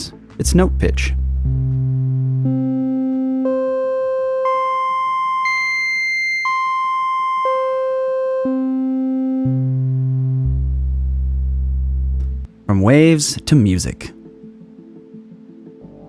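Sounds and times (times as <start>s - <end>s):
synthesized musical tones: 1.2s - 12.5s.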